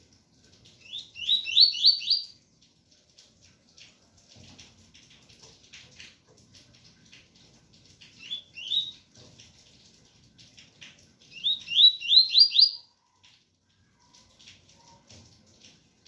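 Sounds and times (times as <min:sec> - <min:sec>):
rain pattering: 0:00.0 - 0:16.0
bird whistling song: 0:00.8 - 0:02.3, 0:08.2 - 0:09.0, 0:11.3 - 0:12.9.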